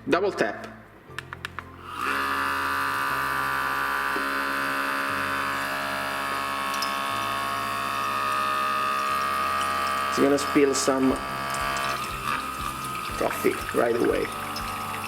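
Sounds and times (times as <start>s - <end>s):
espresso machine pump buzzing: 1.8s - 15.0s.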